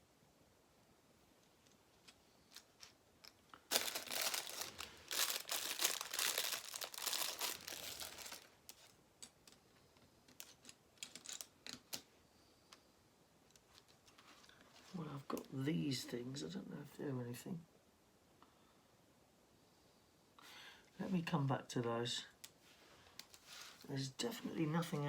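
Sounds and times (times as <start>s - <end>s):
plastic bags crinkling: 2.0s - 9.6s, 10.3s - 12.1s.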